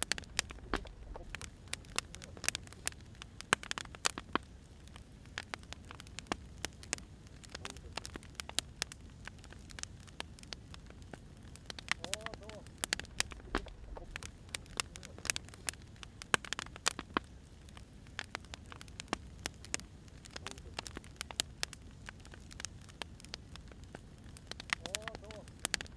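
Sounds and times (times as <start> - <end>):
low rumble: 0.0 - 1.7, 12.8 - 14.6
sharp pops of fire: 0.0 - 25.9
wood fire crackling: 0.0 - 25.9.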